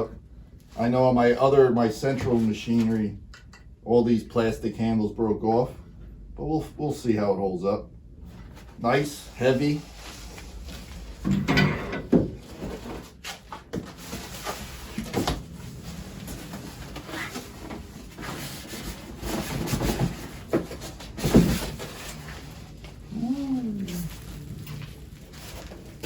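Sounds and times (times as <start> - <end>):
parts knocking being set down: 11.2 - 14.0
packing material rustling: 12.6 - 26.0.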